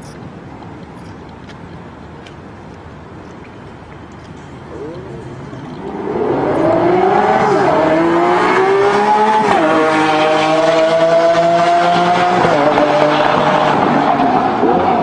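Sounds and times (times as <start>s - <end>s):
car engine accelerating hard: 4.8s - 15.0s.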